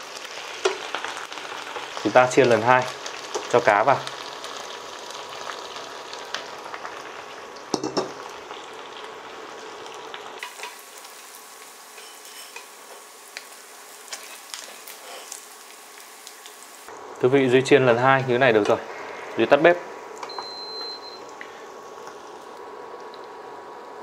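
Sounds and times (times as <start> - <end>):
fish sizzling in hot oil: 0.0 - 16.9
chopsticks stirring: 11.9 - 15.5.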